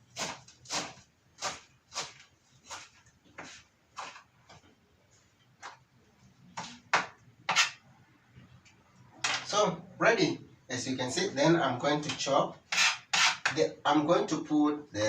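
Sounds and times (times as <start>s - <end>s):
knife chopping on a board: 0.1s - 4.2s.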